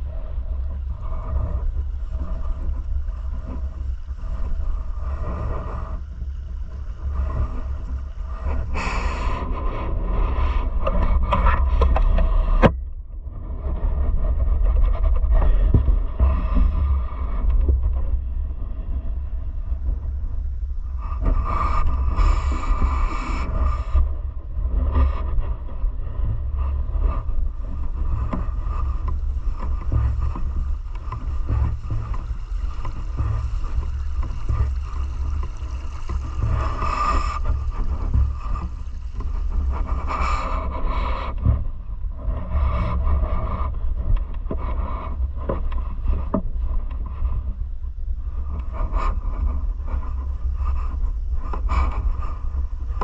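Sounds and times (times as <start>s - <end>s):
low rumble: 0.0s - 53.0s.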